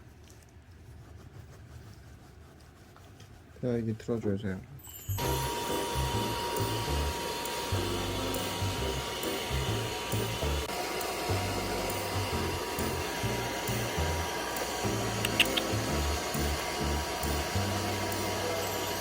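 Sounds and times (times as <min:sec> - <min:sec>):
hair dryer blowing: 0:05.2 - 0:19.0.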